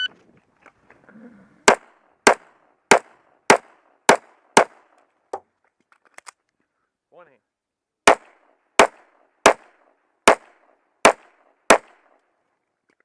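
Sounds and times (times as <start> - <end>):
pistol shots: 1.7 - 4.9, 8.0 - 12.1.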